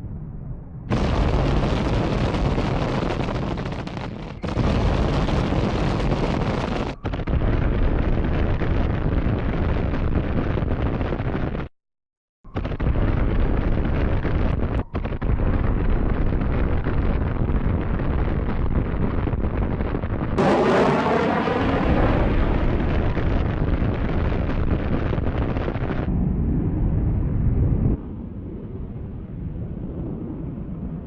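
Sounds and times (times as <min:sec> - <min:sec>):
sweeping whine: 0:20.4 - 0:23.1
jet engines roaring: 0:20.4 - 0:23.6.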